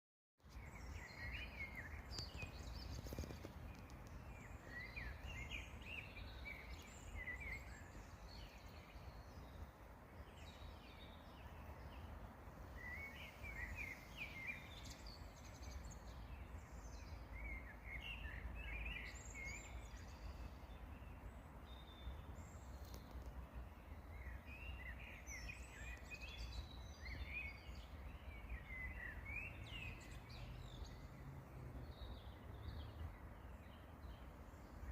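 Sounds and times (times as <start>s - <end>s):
songbirds chirping: 0.4s - 34.9s.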